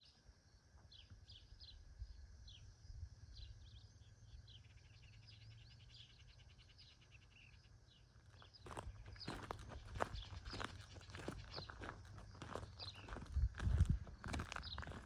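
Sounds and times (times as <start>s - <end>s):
small birds chirping: 3.3s - 15.0s
footsteps: 8.7s - 15.0s
low wind rumble: 12.4s - 15.0s.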